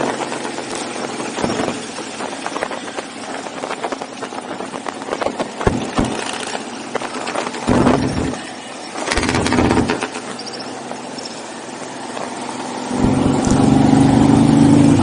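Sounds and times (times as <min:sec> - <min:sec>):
motorcycle engines running: 0:00.0 - 0:15.0
sharp knocks: 0:05.6 - 0:06.5, 0:09.1 - 0:10.4.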